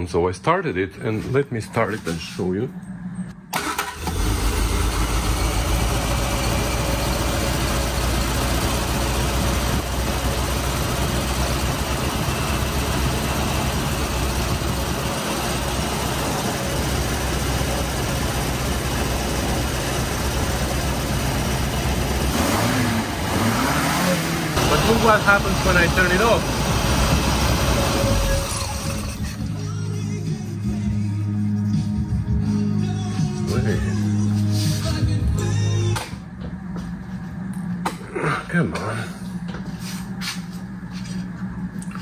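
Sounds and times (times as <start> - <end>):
car engine starting and idling: 3.1 - 29.7.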